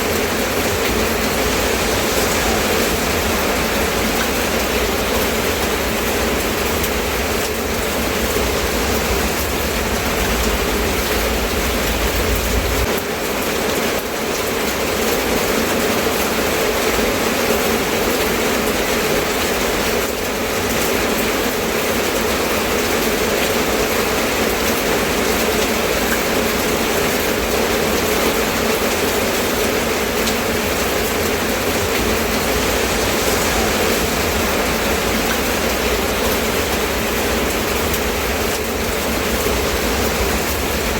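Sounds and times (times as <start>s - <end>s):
low rumble: 0.0s - 12.9s, 30.2s - 40.9s
steady rain hiss: 0.0s - 40.9s.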